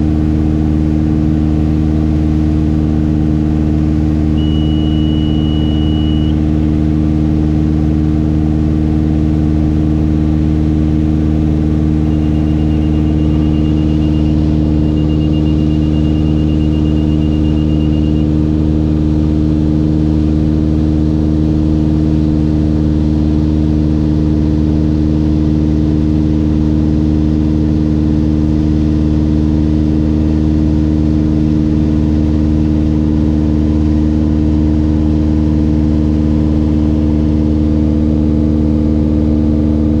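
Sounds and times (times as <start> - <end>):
aircraft engine and propeller droning: 0.0 - 40.0
rapid high-pitched beeping: 11.9 - 18.4.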